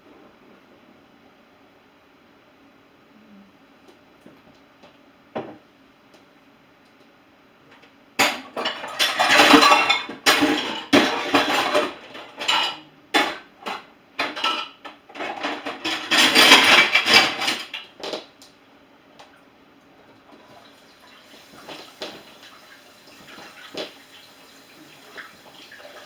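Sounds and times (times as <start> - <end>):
dishes and cutlery clattering: 8.2 - 17.8.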